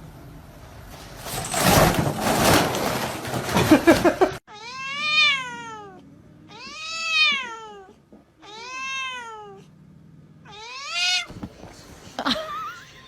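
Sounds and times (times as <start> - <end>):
cat meowing: 4.5 - 9.7, 10.4 - 11.4.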